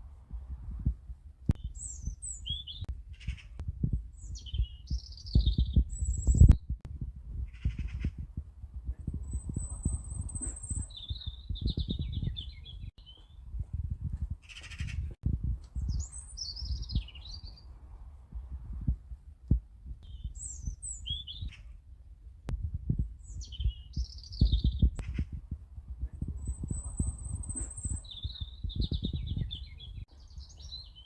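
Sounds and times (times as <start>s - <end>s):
songbirds singing: 1.5s - 6.8s, 7.4s - 8.3s, 8.9s - 13.8s, 14.4s - 17.8s, 20.0s - 21.8s, 22.9s - 31.0s
low irregular thumping: 18.4s - 20.0s, 22.4s - 29.6s.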